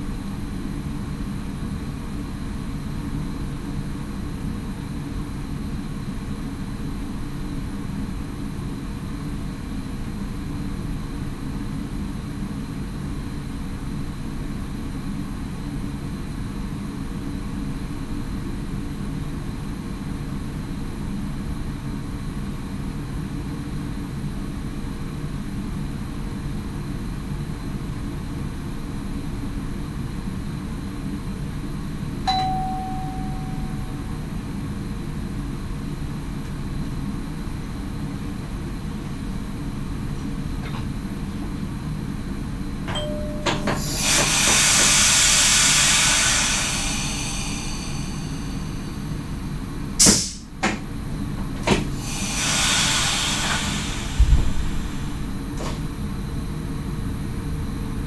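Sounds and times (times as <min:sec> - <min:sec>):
cab chime: 0:32.3 - 0:34.2, 0:42.9 - 0:43.8
click and tone: 0:32.3 - 0:34.2, 0:42.9 - 0:43.9
train cab running rumble: 0:42.8 - 0:57.2
loud rushing noise: 0:52.9 - 0:55.6.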